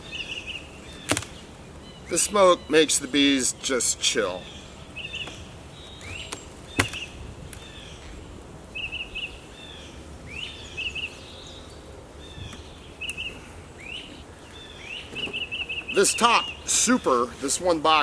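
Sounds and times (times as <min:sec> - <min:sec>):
songbird singing: 0:00.0 - 0:18.0.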